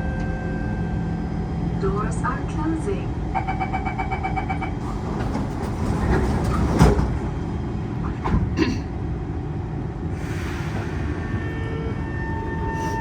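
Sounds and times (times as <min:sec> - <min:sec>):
train rumble: 0:00.0 - 0:13.0
train doors thudding shut: 0:04.7 - 0:08.7.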